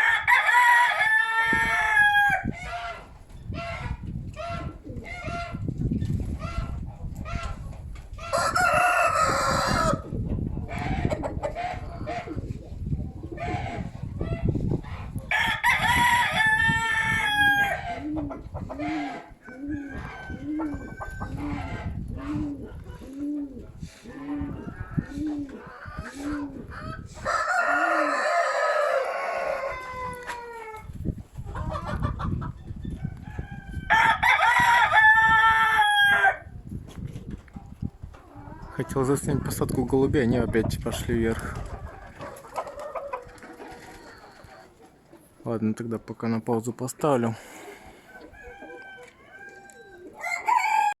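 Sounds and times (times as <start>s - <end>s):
rooster crowing: 0.0s - 3.0s, 8.3s - 10.0s, 15.3s - 18.0s, 18.8s - 21.8s, 27.2s - 30.8s, 33.1s - 36.5s, 48.1s - 51.0s
wind buffeting microphone: 0.0s - 44.7s.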